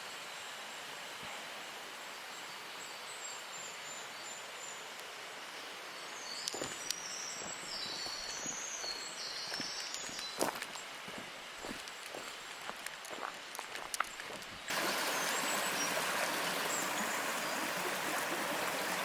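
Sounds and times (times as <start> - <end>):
footsteps: 6.6 - 14.7
waterfall rushing: 14.7 - 19.0.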